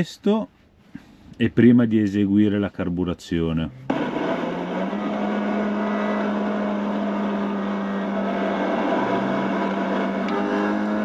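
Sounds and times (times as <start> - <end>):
car engine at high revs: 3.8 - 11.0.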